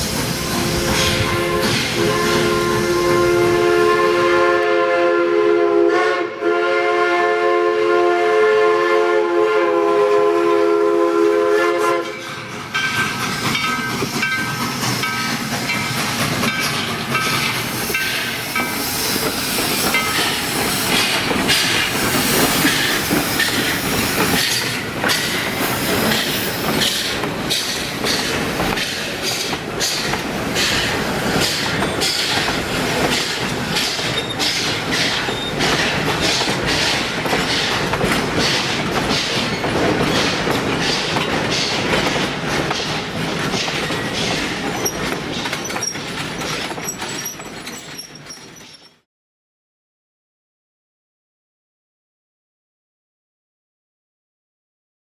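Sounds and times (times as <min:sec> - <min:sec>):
steam locomotive whistle: 0:00.3 - 0:12.4
train wheels clicking over joints: 0:12.2 - 0:49.0.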